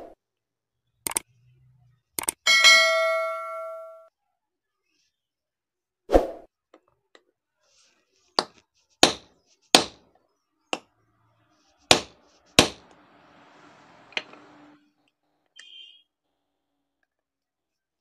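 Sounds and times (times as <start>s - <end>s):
hammer striking metal: 2.5s - 4.1s, 8.4s - 10.0s, 11.9s - 13.0s.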